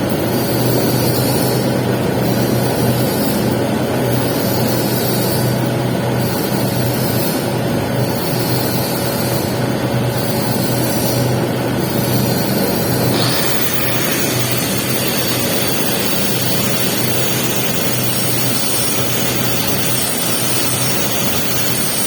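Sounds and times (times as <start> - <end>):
welding arc crackling hiss: 13.1 - 22.0.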